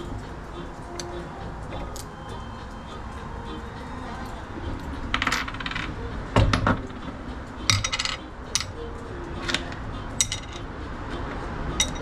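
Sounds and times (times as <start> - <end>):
metallic clinking and jingling: 7.6 - 8.8, 11.8 - 12.0.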